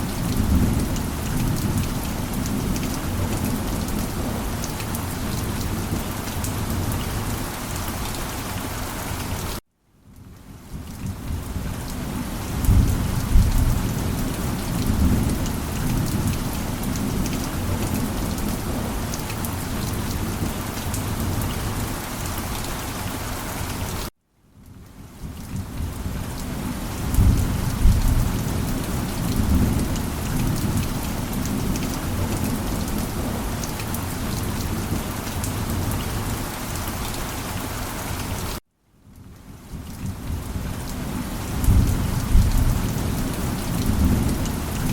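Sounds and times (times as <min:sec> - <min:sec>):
heavy rain: 0:00.0 - 0:38.6, 0:39.2 - 0:44.9
rolling thunder: 0:12.6 - 0:19.0, 0:27.0 - 0:33.4, 0:41.6 - 0:44.9.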